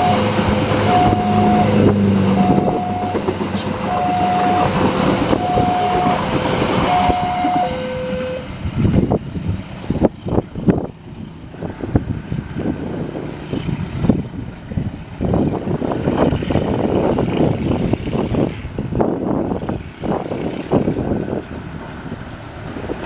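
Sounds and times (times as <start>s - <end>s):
train clattering knocks: 0.0s - 8.3s
train rumbling: 0.0s - 23.0s.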